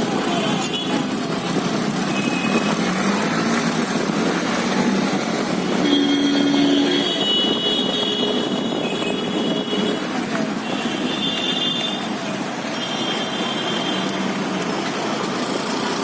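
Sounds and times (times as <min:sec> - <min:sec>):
passing vehicles: 0:00.0 - 0:16.0.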